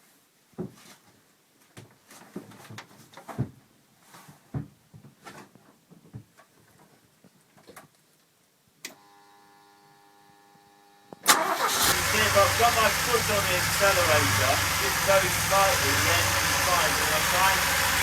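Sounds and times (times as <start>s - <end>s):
faint electrical hum: 6.3s - 11.2s.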